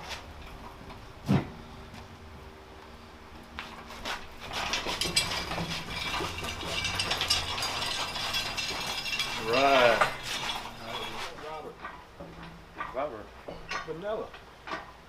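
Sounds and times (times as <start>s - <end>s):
metallic rattling and clicking: 4.4s - 14.0s.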